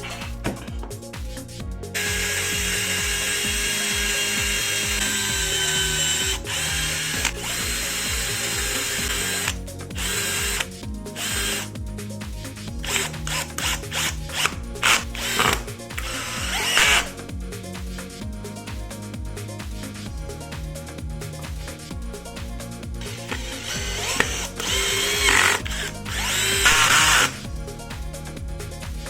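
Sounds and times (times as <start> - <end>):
background music with steady beat: 0.0 - 29.0
small power tool running: 1.9 - 11.7, 12.8 - 17.2, 23.0 - 27.5.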